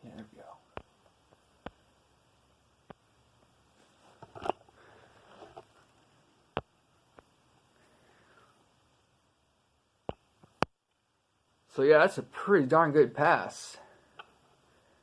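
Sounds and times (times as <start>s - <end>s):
faint clicks and taps: 0.1s - 1.9s, 5.4s - 7.6s, 10.0s - 11.0s, 14.1s - 14.5s.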